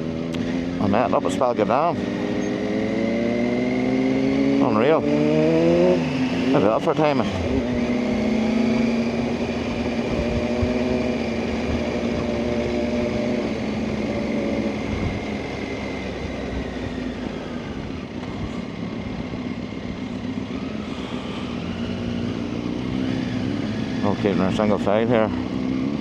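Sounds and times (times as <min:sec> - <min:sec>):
motorcycle engine running: 0:00.0 - 0:26.0
road noise: 0:00.0 - 0:26.0
wind rush on microphone: 0:09.4 - 0:12.7, 0:14.8 - 0:15.4.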